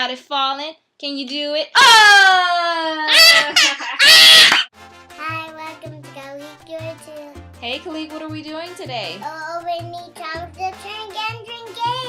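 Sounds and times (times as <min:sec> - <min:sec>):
child shrieking: 0:01.8 - 0:04.7
children's music jingle: 0:04.7 - 0:12.0.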